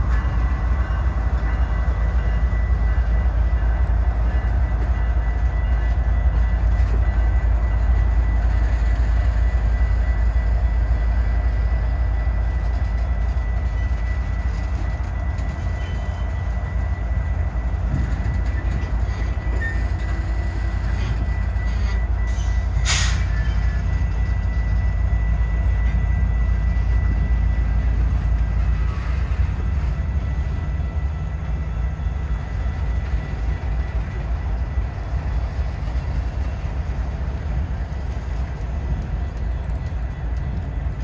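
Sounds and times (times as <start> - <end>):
train wheels rumbling and rattling: 0.0 - 41.0.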